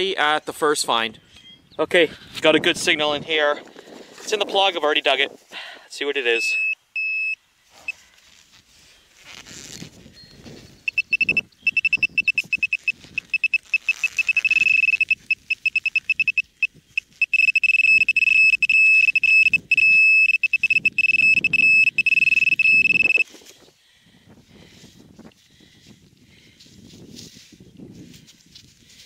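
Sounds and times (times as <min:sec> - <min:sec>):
pinpointer beeping: 0:06.3 - 0:07.4, 0:10.2 - 0:23.2
soil rustling: 0:07.6 - 0:23.8.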